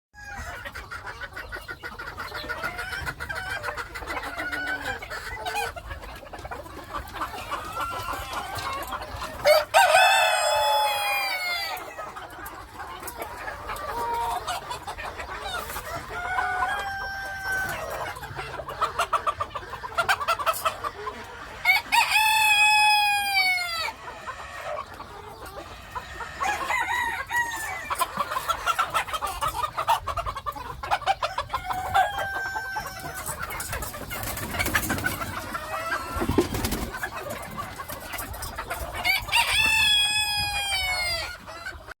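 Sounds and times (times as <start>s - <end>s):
chickens clucking: 0.2s - 42.0s
rooster crowing: 9.4s - 11.8s, 16.1s - 17.9s, 26.4s - 27.9s, 31.6s - 33.1s.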